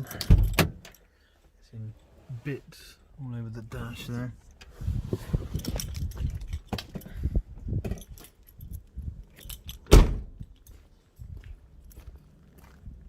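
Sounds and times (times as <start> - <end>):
jangling clinking handling noises: 5.5 - 7.2, 7.8 - 9.9, 10.5 - 11.3
loud thump: 9.9 - 10.3.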